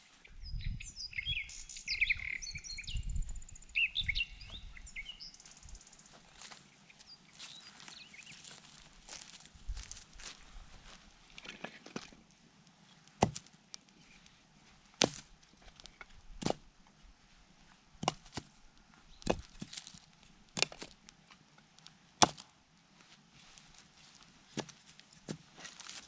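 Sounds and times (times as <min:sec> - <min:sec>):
axe chopping wood: 0:13.2 - 0:13.5, 0:15.0 - 0:15.2, 0:18.0 - 0:18.5, 0:22.2 - 0:22.4.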